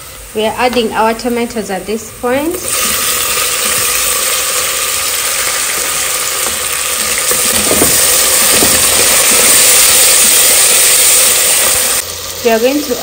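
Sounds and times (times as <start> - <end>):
tomatoes sizzling in hot oil: 0.0 - 13.0
wooden spatula stirring: 5.6 - 9.6.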